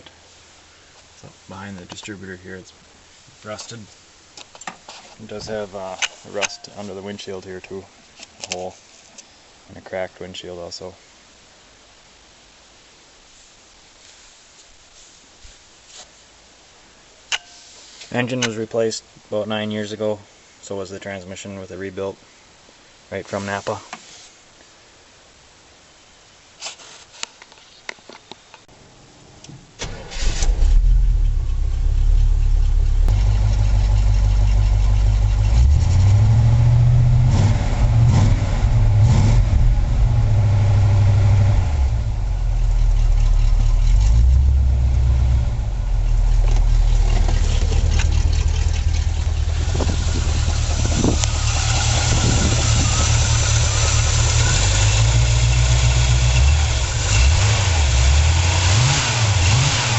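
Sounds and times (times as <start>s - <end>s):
truck engine starting and revving: 29.8s - 59.9s.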